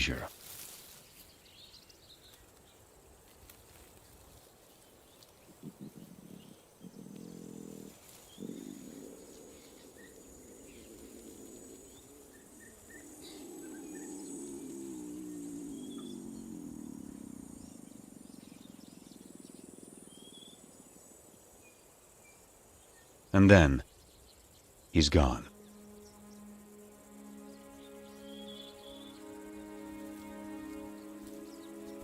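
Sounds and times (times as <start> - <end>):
insects whining: 2.2 - 32.0
lions calling: 5.6 - 18.8
bird chirps: 23.8 - 32.0.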